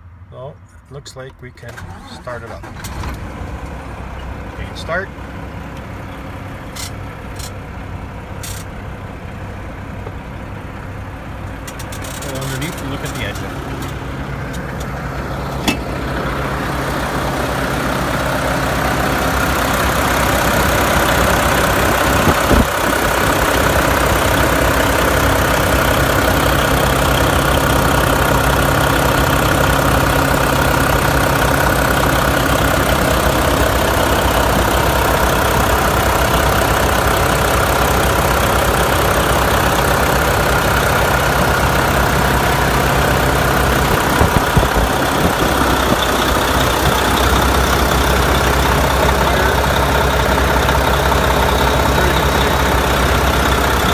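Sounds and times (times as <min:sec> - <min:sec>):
diesel engine idling: 0:00.0 - 0:53.9.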